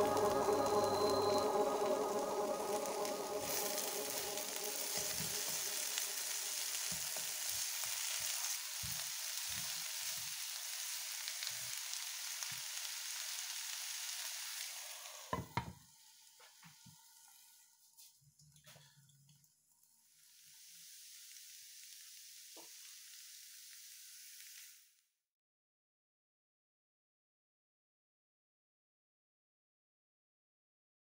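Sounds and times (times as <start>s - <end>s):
vegetables sizzling in pan: 0.0s - 18.1s, 19.8s - 25.0s.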